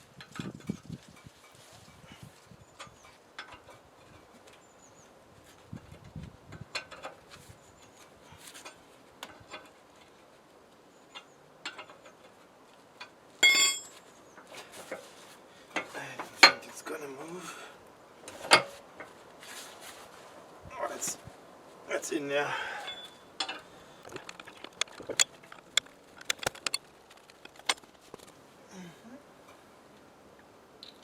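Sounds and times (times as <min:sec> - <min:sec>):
loud ringing metal clang: 0:13.4 - 0:14.0
metal tools clicking and clinking: 0:13.4 - 0:14.0, 0:22.8 - 0:27.8.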